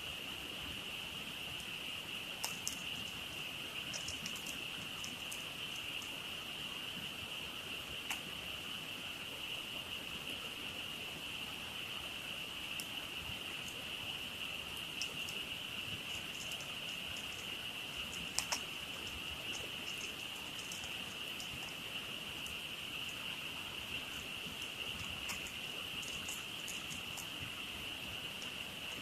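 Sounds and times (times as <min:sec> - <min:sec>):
frog chorus trilling: 0:12.2 - 0:29.0.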